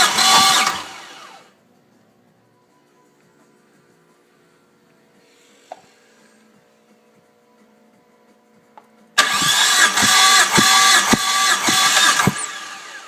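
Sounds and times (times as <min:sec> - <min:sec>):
starter motor cranking engine: 0:00.0 - 0:01.4, 0:09.2 - 0:13.0.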